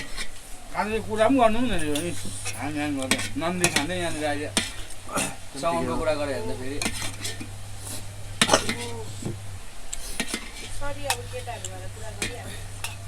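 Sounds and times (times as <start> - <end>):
steady low hum: 0.0 - 13.0
cutlery clinking on plates: 2.9 - 5.3, 8.4 - 9.4, 10.0 - 11.3.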